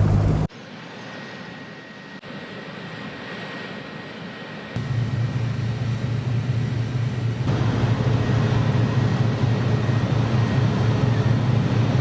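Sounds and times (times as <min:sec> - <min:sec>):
boat engine droning: 0:00.0 - 0:00.5, 0:07.5 - 0:12.0.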